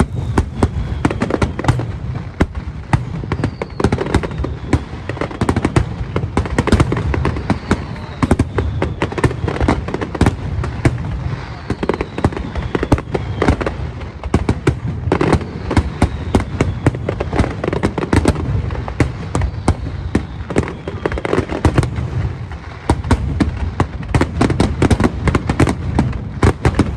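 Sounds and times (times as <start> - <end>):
low rumble: 0.0 - 3.3
fireworks falling whistles: 0.0 - 14.5, 15.1 - 26.9
fireworks cracks and bangs: 0.0 - 16.0, 17.2 - 26.9.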